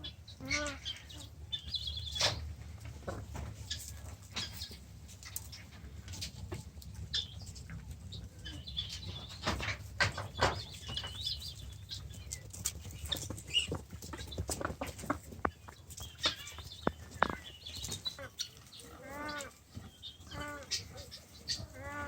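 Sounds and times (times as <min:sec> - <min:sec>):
birds chirping and clucking: 0:00.0 - 0:22.0
sharp taps and clicks: 0:14.4 - 0:17.5.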